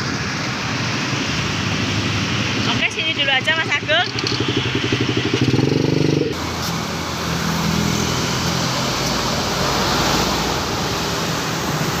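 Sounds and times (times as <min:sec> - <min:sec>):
rushing noise: 0:00.0 - 0:12.0
small motorbike engine running: 0:04.0 - 0:09.4.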